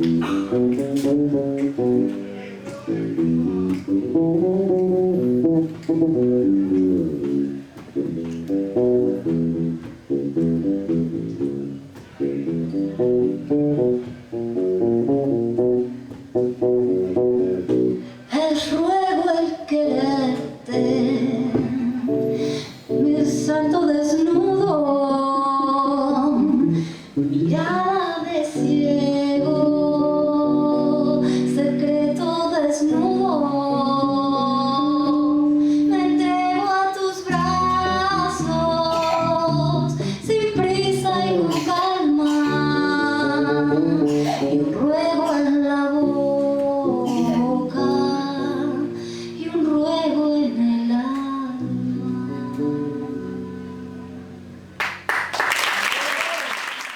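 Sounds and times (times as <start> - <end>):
plucked bass: 0.0 - 18.1, 28.6 - 50.2
woman singing slow song: 18.3 - 54.5.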